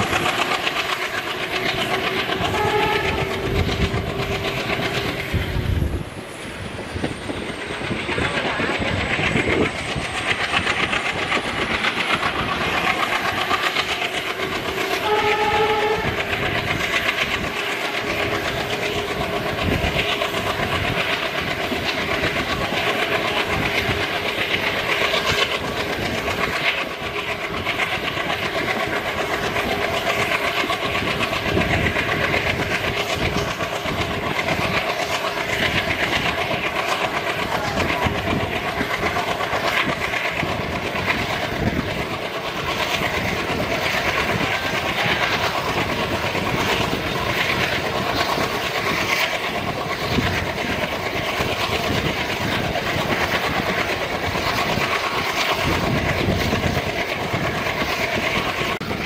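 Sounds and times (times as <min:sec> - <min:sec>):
train horn note: 0:02.4 - 0:03.5, 0:15.0 - 0:16.3.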